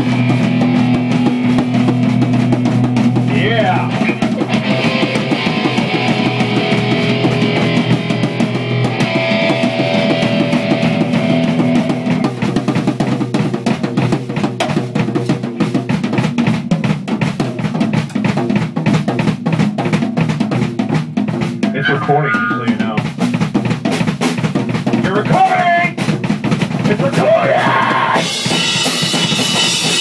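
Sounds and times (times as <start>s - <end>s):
ringing guitar chords: 0.0s - 12.4s
drum kit: 0.0s - 30.0s.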